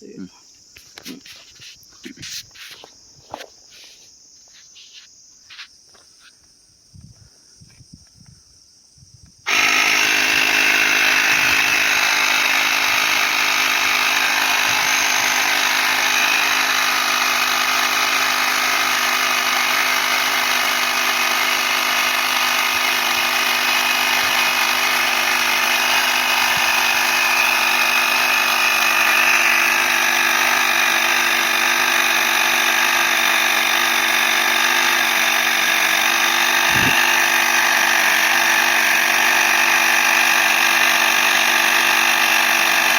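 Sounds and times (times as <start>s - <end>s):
electric air compressor humming: 9.5s - 42.9s.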